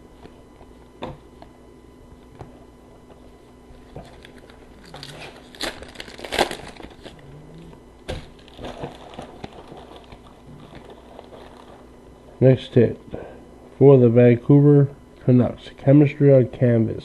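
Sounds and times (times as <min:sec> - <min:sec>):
foil wrapper crinkling and tearing: 0:03.8 - 0:07.2, 0:08.1 - 0:11.9.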